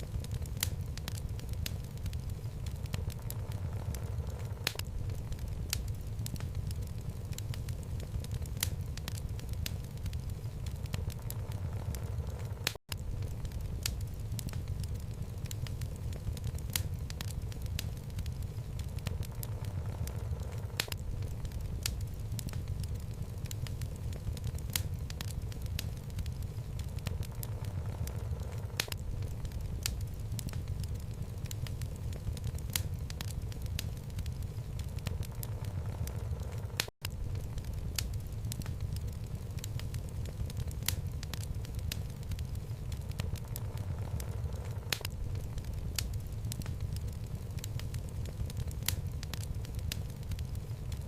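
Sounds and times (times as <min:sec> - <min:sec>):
fire crackling and popping: 0:00.0 - 0:51.0
low rumble of flames: 0:00.0 - 0:51.0.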